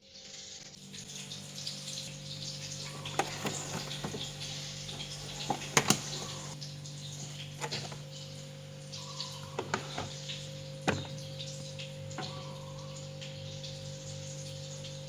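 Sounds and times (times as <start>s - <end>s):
steady hum and hiss: 0.0s - 15.0s
clicks and knocks of handling: 3.0s - 6.6s, 7.6s - 8.1s, 9.6s - 10.3s.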